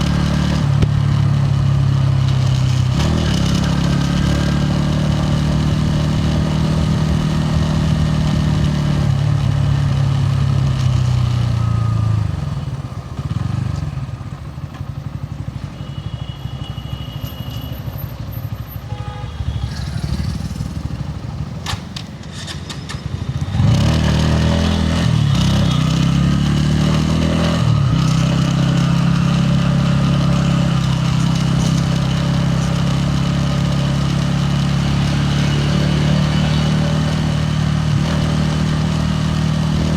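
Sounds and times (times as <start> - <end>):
motorcycle engine running and revving: 0.0 - 39.9.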